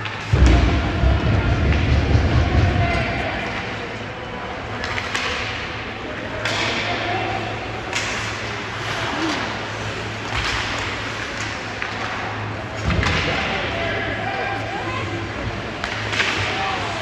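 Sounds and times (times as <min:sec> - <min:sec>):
hockey sticks knocking puck: 0:07.8 - 0:08.4, 0:15.8 - 0:17.0.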